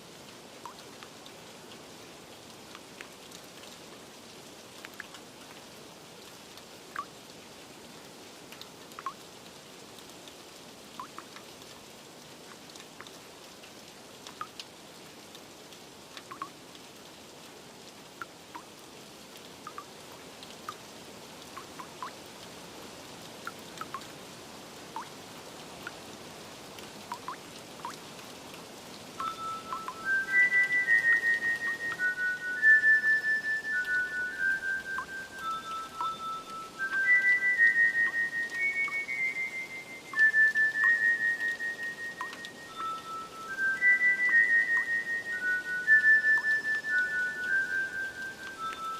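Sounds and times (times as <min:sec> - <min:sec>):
rain hiss: 0:00.0 - 0:48.9
water drips plinking: 0:00.6 - 0:01.8, 0:04.8 - 0:05.6, 0:06.9 - 0:07.2, 0:08.5 - 0:09.3, 0:10.9 - 0:11.5, 0:12.5 - 0:14.7, 0:16.1 - 0:16.8, 0:18.1 - 0:18.8, 0:19.4 - 0:20.9, 0:21.5 - 0:22.3, 0:23.2 - 0:24.2, 0:24.9 - 0:25.2, 0:26.8 - 0:28.1, 0:28.9 - 0:48.9
soft chime-like music: 0:29.2 - 0:48.9.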